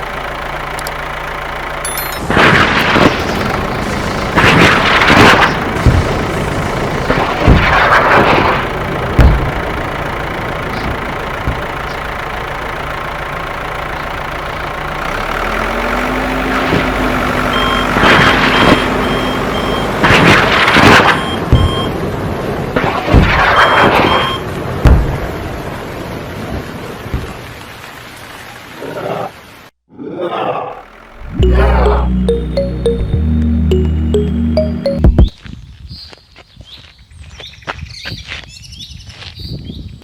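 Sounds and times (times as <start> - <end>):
pulsing beep: 31.2 - 35.3.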